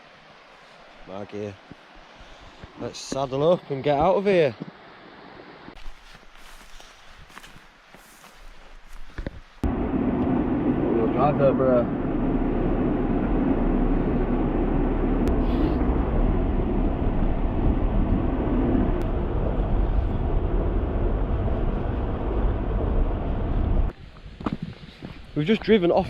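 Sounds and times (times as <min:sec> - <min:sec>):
vehicle engine and tyres rumbling: 0:09.6 - 0:25.1.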